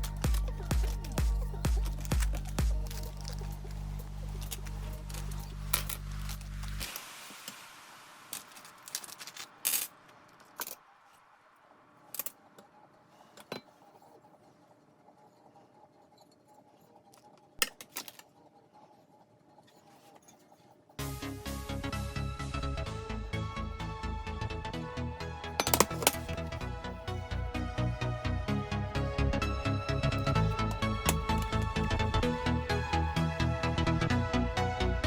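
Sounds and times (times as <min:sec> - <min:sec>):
background music with steady beat: 0:00.0 - 0:06.8, 0:21.0 - 0:35.0
small parts clicking and rattling: 0:00.0 - 0:07.1, 0:08.3 - 0:10.8, 0:25.6 - 0:26.6, 0:30.1 - 0:33.3
sharp knocks of parts: 0:25.6 - 0:26.5.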